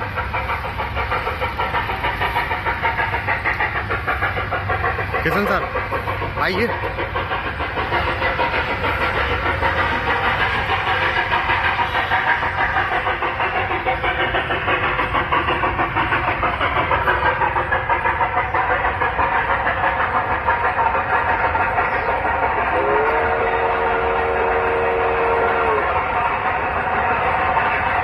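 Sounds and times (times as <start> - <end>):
steam locomotive chuffing: 0.0 - 28.0
steam whistle: 22.7 - 26.0.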